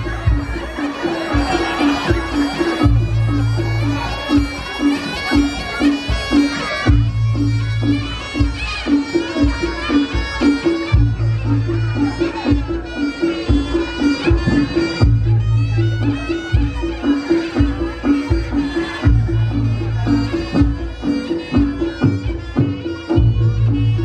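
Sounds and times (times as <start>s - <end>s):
shawm playing melody: 0.0s - 24.0s.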